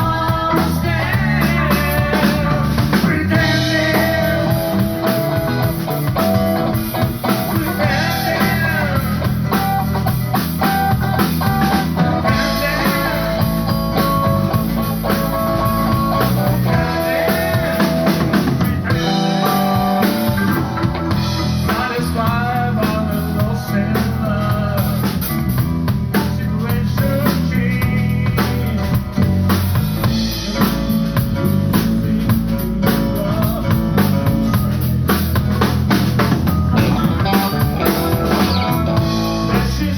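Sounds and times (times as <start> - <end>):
live blues-rock band playing: 0.0 - 39.9.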